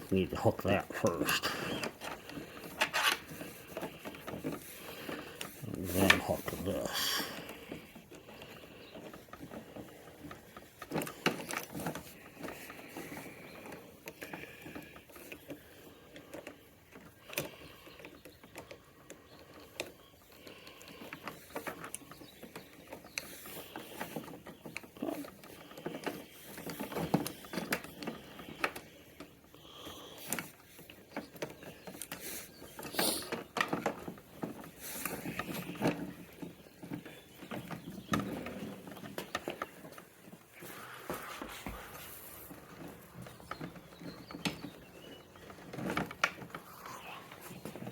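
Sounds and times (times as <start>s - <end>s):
metal parts clicking and rattling: 1.6s - 18.7s.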